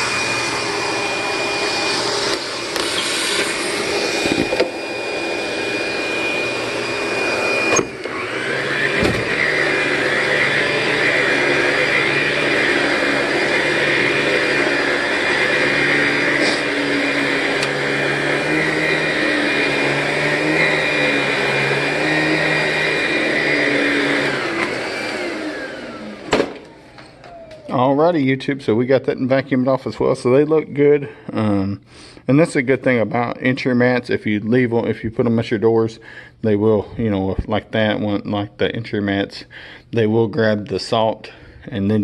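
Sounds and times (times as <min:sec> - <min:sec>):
vacuum winding down whine: 0:00.0 - 0:29.2
vacuum cleaner running: 0:00.0 - 0:31.6.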